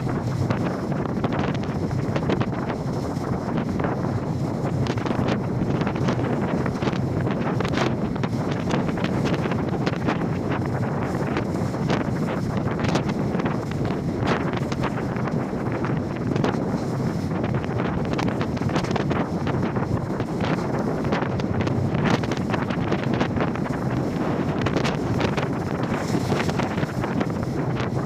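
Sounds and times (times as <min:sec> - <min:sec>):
waves breaking and splashing: 0:00.0 - 0:28.0
wind buffeting microphone: 0:00.0 - 0:28.0.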